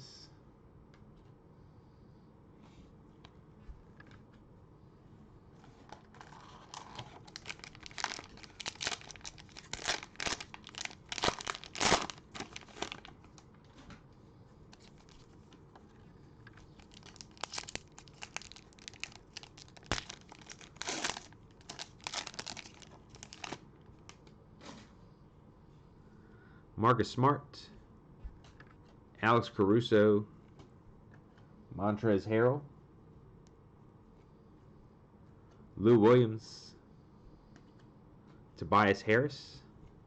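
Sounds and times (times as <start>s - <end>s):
cellophane wrapper crinkling: 5.9s - 13.5s, 14.7s - 15.9s, 16.5s - 24.2s.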